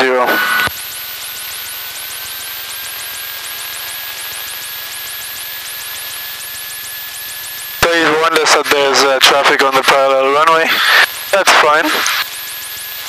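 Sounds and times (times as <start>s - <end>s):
faint high whine: 0.0s - 13.0s
faint idling aircraft engine: 0.6s - 13.0s
intercom electrical hiss: 7.8s - 12.2s.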